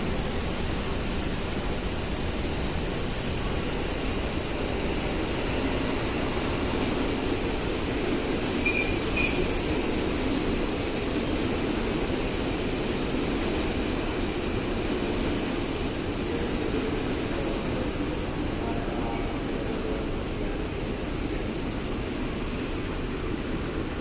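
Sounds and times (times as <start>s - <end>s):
train wheel and rail rumble: 0.0s - 24.0s
high wheel squeals: 6.3s - 10.1s, 14.8s - 22.8s.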